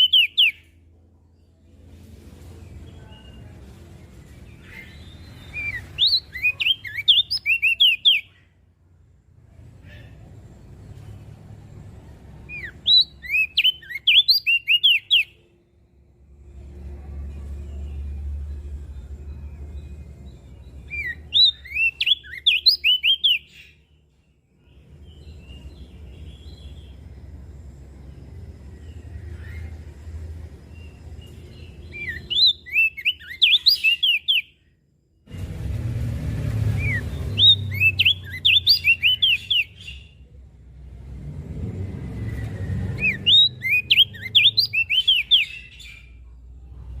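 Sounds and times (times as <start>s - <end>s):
bird twittering song: 0.0s - 1.8s, 2.6s - 8.6s, 9.8s - 34.8s, 36.5s - 40.5s, 42.0s - 47.0s
low background rumble: 15.3s - 22.2s, 34.6s - 47.0s.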